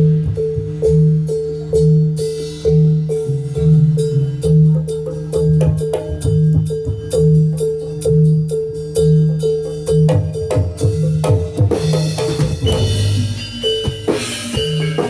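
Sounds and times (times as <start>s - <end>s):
gamelan music through loudspeakers: 0.0s - 15.0s
drum hits: 10.1s - 15.0s.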